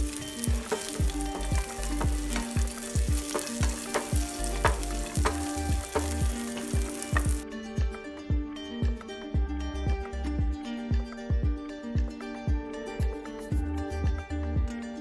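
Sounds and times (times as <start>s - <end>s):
nuts sizzling in frying pan: 0.0s - 7.4s
spatula stirring: 0.0s - 7.4s
background music with steady beat: 0.0s - 15.0s.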